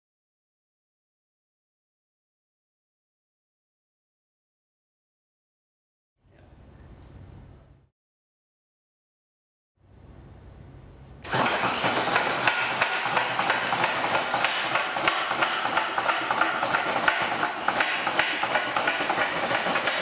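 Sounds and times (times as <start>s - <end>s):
power saw cutting metal: 11.2s - 20.0s.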